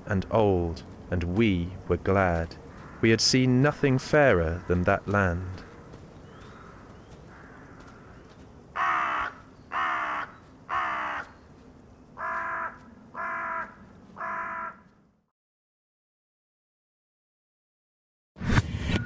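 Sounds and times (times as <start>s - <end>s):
crow cawing: 2.7s - 3.2s, 4.4s - 4.8s, 5.4s - 11.4s, 12.2s - 15.1s.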